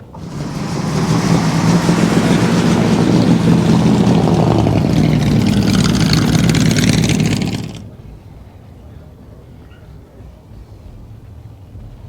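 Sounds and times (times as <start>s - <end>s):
loud engine drone: 0.0s - 7.9s
exhaust rattle: 0.0s - 8.0s.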